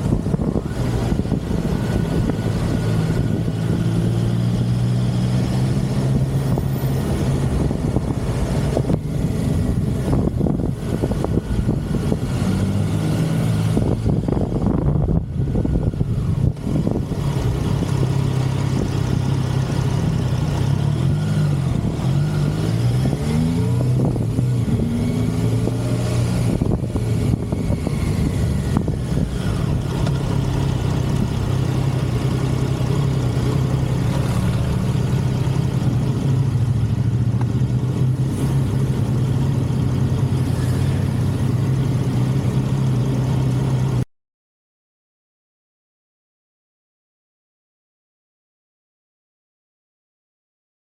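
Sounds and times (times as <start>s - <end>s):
wind noise: 0.0s - 39.0s
motorcycle engine running: 0.0s - 44.0s.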